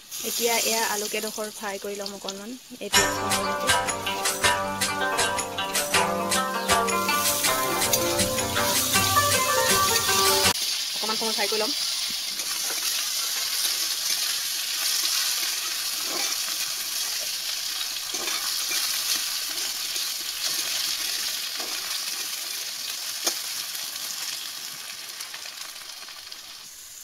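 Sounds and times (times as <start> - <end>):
potatoes sizzling in oil: 0.0 - 4.6, 5.2 - 27.0
metal spatula scraping pan: 15.4 - 16.6, 18.1 - 19.7.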